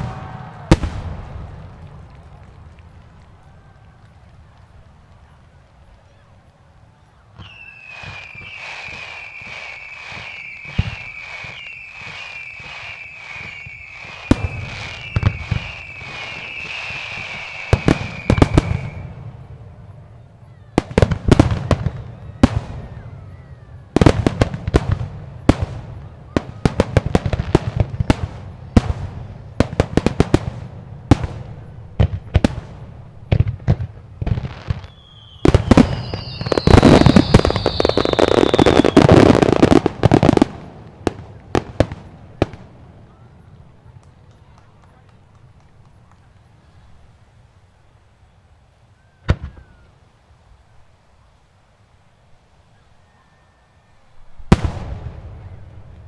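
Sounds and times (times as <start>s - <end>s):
dense firework crackling: 0.0s - 47.7s, 54.1s - 56.0s
whistling firework shells: 7.4s - 19.4s, 34.3s - 46.8s, 49.0s - 49.9s.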